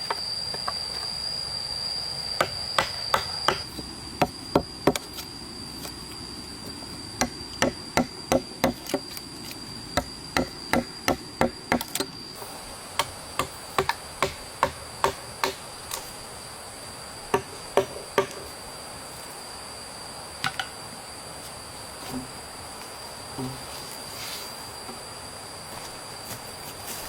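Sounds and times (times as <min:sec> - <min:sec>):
insects droning: 0:00.0 - 0:27.0
hand tool striking: 0:02.4 - 0:05.2, 0:07.2 - 0:09.2, 0:10.0 - 0:12.2, 0:13.0 - 0:15.6.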